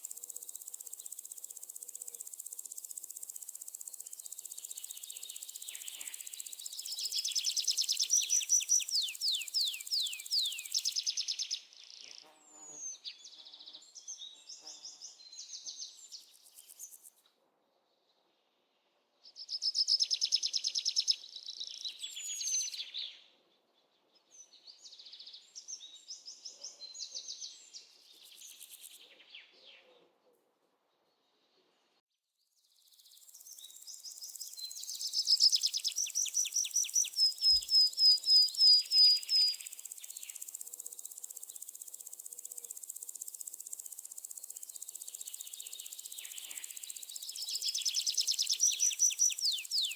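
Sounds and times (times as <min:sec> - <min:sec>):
songbirds singing: 0:00.0 - 0:17.1, 0:19.3 - 0:30.0, 0:32.8 - 0:49.9.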